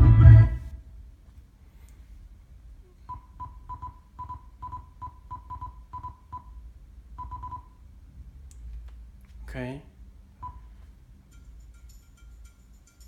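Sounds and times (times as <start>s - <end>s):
short electronic beeps: 7.2s - 7.8s.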